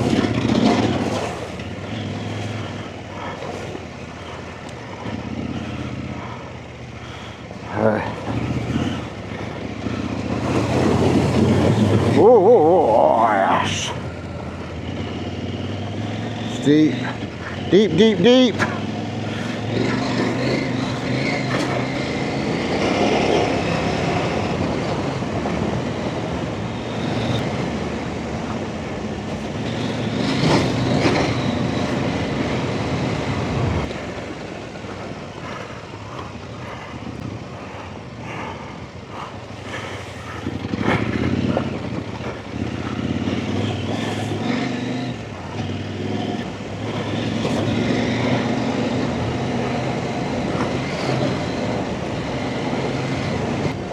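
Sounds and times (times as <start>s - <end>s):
rough noise: 0.0s - 4.4s
dirt bike engine revving: 0.0s - 53.9s.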